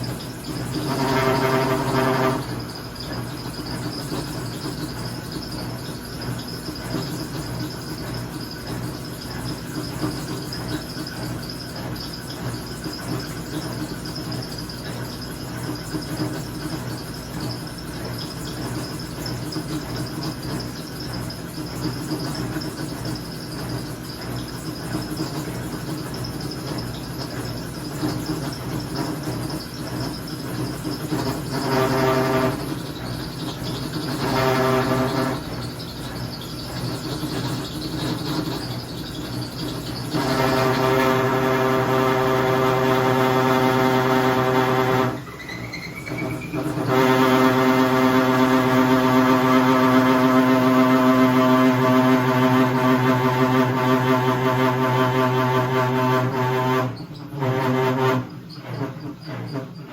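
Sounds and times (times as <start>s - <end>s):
washing machine whine and hum: 0.0s - 59.9s.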